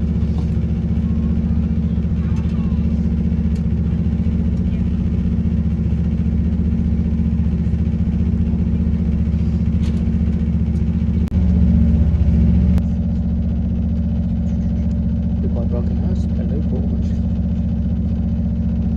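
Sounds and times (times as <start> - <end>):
train diesel engine drone: 0.0 - 18.9.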